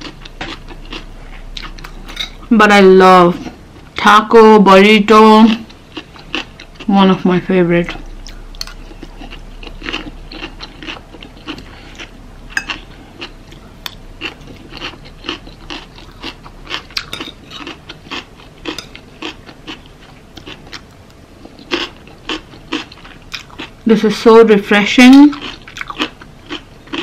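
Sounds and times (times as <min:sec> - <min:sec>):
crunchy chewing: 0:00.0 - 0:02.2, 0:05.6 - 0:06.9, 0:07.8 - 0:23.8, 0:25.3 - 0:27.0.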